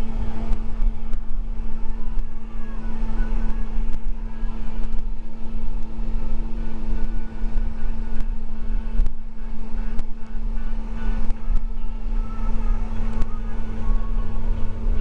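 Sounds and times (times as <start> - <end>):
bus engine drone: 0.0 - 15.0
road rumble: 0.0 - 15.0.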